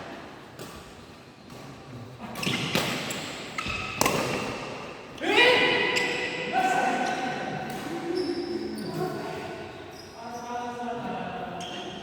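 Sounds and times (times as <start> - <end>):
shoes squeaking on court floor: 0.6 - 4.1, 7.9 - 10.6, 11.5 - 12.0
racket striking shuttlecock: 2.4 - 4.8.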